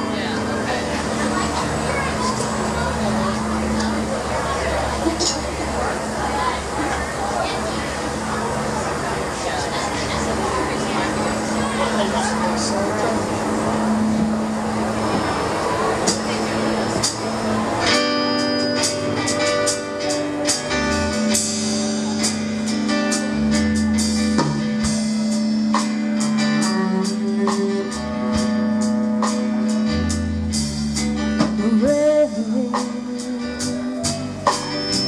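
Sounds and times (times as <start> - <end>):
bass guitar: 0.0 - 35.0
electric guitar: 0.0 - 35.0
drum and cymbal hits: 13.5 - 32.0, 32.6 - 35.0.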